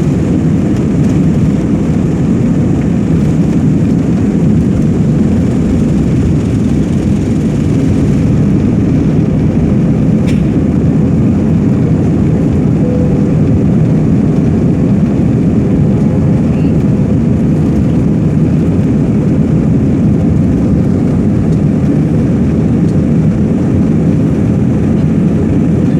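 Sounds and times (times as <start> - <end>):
jet engines in airliner cabin: 0.0 - 25.9.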